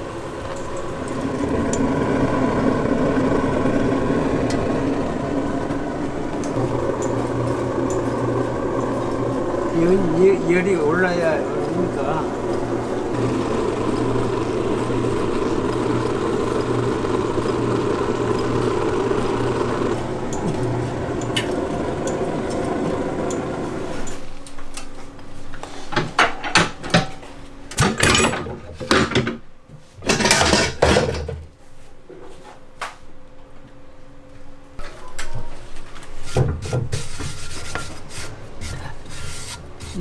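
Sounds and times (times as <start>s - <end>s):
popping machine roar: 0.0s - 24.8s
metal knocks and clatters: 30.0s - 31.5s.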